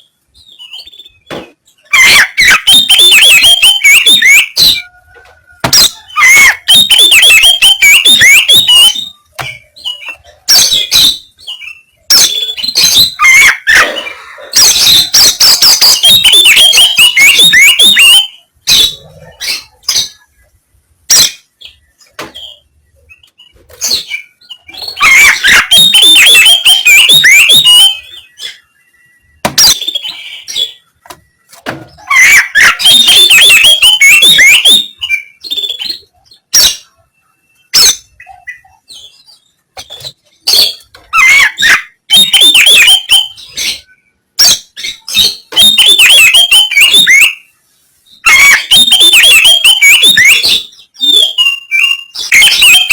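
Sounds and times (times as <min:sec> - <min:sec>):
bird chattering song: 0:00.0 - 0:05.0, 0:05.7 - 0:52.9.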